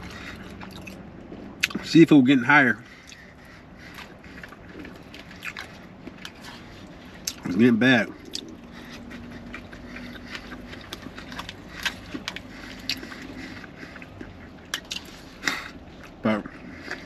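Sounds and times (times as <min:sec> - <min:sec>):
wet chewing mouth clicks: 0:00.0 - 0:01.9, 0:02.9 - 0:17.0
faint low hum: 0:00.0 - 0:17.0.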